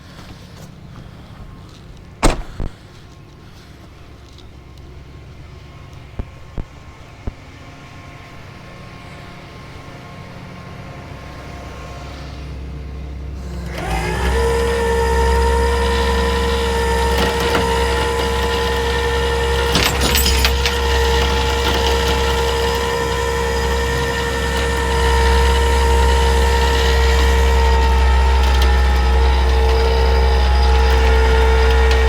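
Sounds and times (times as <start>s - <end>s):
truck engine rumble: 0.0s - 5.4s, 10.7s - 32.0s
steady whine: 12.7s - 32.0s.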